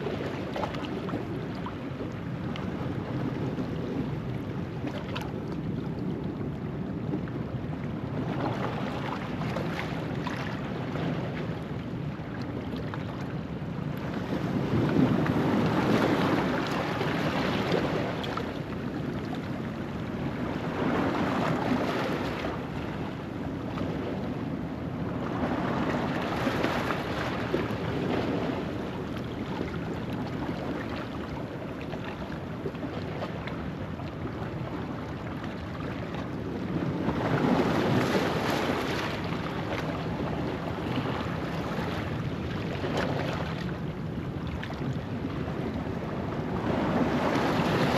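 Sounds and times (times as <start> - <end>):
wind: 0.0 - 47.9.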